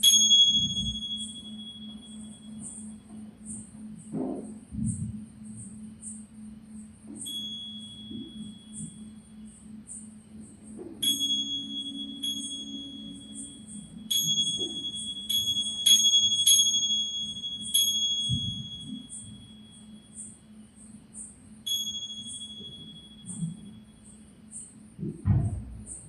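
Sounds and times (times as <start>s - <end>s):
small bells ringing: 0.0s - 3.0s, 7.2s - 9.1s, 11.0s - 20.5s, 21.2s - 24.7s
faint low drone: 0.0s - 26.0s.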